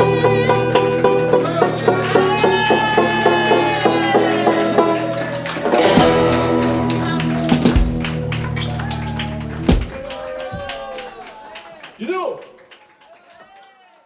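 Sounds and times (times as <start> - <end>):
acoustic banjo instrumental: 0.0 - 10.2
low thump: 7.4 - 8.4, 9.7 - 10.7.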